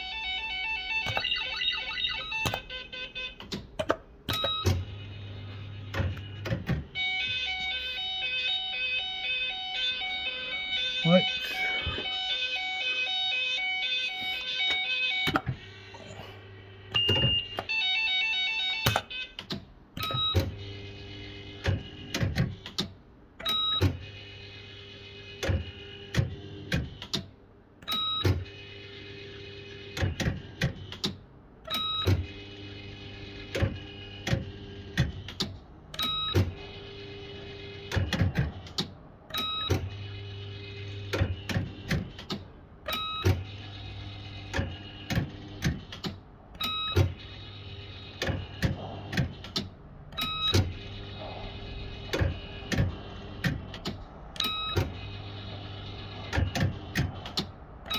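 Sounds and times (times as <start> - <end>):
electronic tones: 0.0 - 3.4, 4.3 - 16.1
slot machine reels whirring: 0.0 - 3.7, 46.6 - 48.6, 49.2 - 57.9
short electronic beeps: 16.9 - 17.9.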